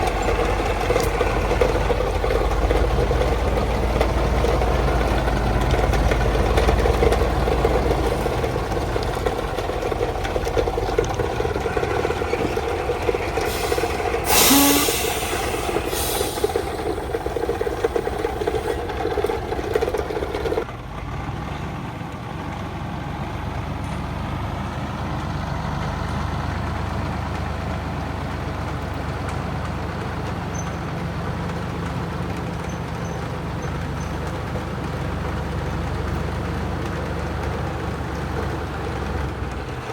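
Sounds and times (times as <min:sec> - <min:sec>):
truck engine running: 0:00.0 - 0:39.9
air brake hisses: 0:13.4 - 0:18.9.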